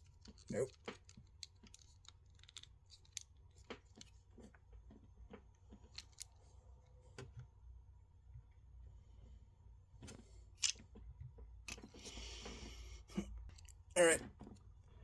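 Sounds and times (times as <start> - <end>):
plastic toy parts clicking: 0.0 - 4.2, 5.8 - 6.4, 10.6 - 10.8.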